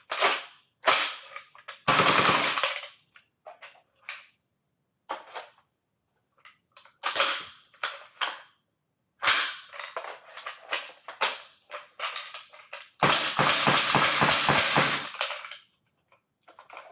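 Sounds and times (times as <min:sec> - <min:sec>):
airsoft gun firing bursts: 0:01.9 - 0:02.6, 0:13.0 - 0:15.2.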